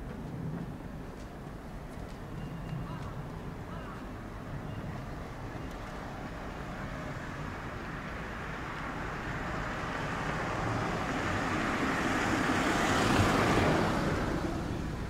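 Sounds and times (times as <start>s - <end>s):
electric train passing: 4.2s - 15.0s.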